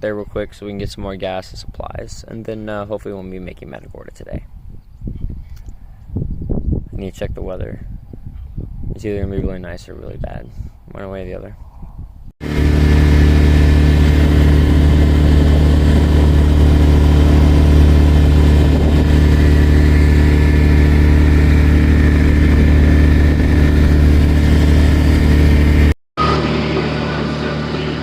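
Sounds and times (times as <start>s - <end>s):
boat engine droning: 12.4s - 28.0s.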